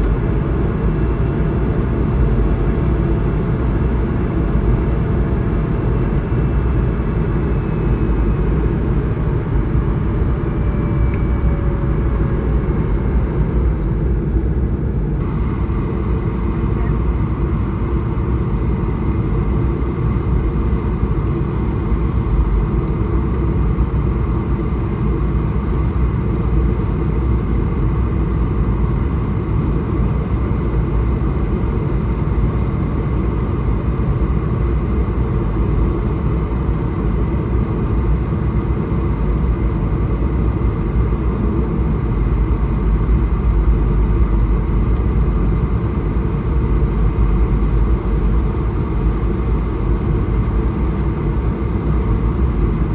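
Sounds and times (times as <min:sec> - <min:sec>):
jet engines humming: 0:00.0 - 0:52.9
faint steady tones: 0:15.2 - 0:27.1.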